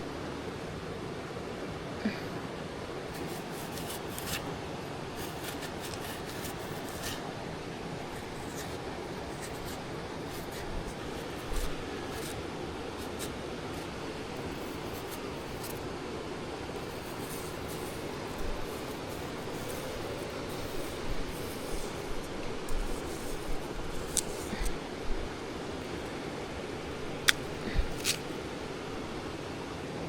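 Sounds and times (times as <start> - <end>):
steady background hiss: 0.0 - 30.0
light clicks and rubbing: 3.1 - 4.5, 5.2 - 7.3, 8.0 - 15.8, 16.8 - 24.8, 27.2 - 28.3.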